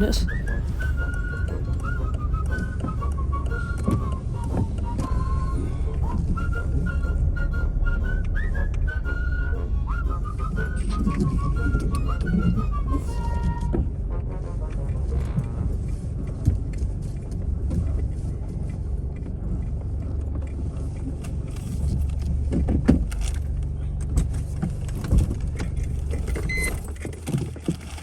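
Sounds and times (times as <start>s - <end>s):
car engine humming: 0.0s - 28.0s
small knocks and rattles: 21.2s - 28.0s.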